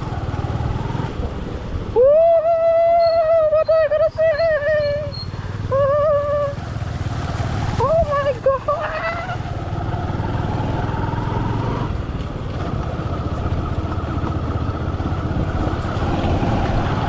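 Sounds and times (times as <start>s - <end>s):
motorcycle engine running: 0.0s - 1.9s, 3.1s - 17.0s
road and wind noise: 0.0s - 17.0s.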